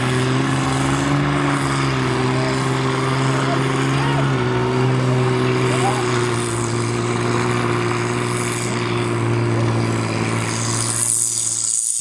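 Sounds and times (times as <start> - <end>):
diesel truck engine revving: 0.0 - 11.9
hiss: 10.5 - 12.0.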